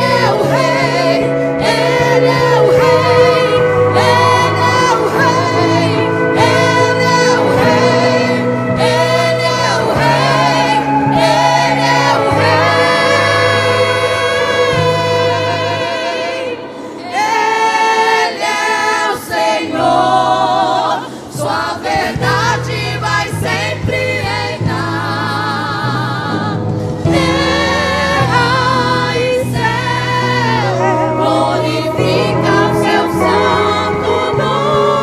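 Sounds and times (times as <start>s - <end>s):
low instrumental accompaniment: 0.0s - 20.8s, 21.4s - 35.0s
women singing in harmony: 0.0s - 35.0s.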